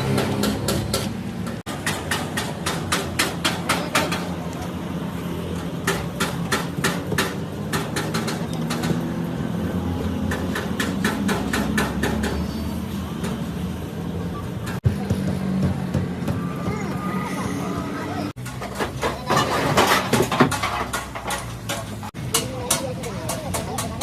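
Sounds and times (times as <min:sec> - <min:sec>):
rapid hammer blows on metal: 0:00.0 - 0:04.4, 0:05.6 - 0:09.2, 0:10.2 - 0:12.4, 0:20.5 - 0:24.0.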